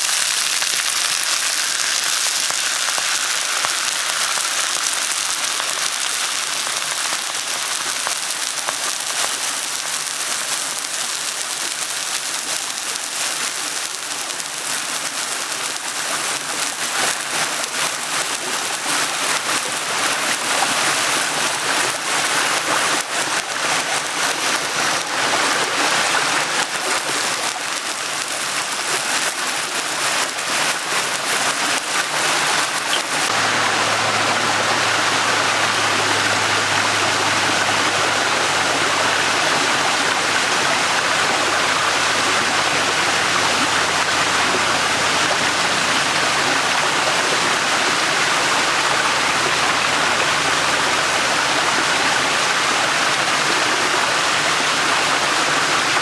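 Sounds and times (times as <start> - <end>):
small clicks: 0.0 - 33.4
stream burbling: 0.0 - 56.0.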